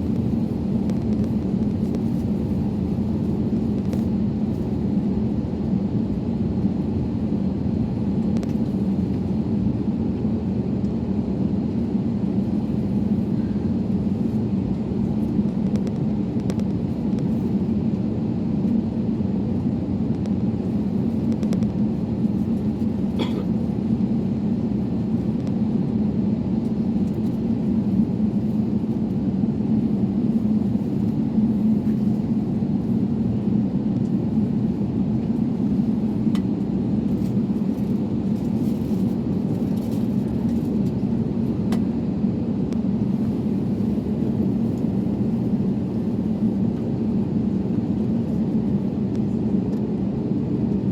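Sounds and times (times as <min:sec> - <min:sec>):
airplane low rumble: 0:00.0 - 0:50.9.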